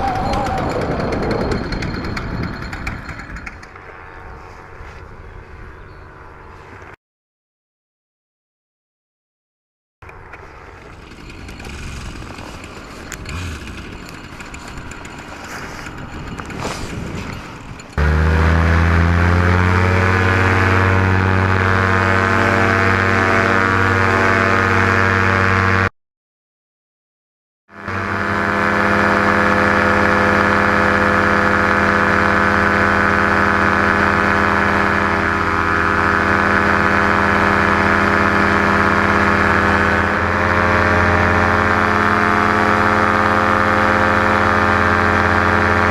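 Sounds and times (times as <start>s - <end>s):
paramotor engine and propeller: 0.0s - 7.0s, 10.0s - 25.9s, 27.7s - 45.9s
uneven rustling noise: 10.2s - 18.0s.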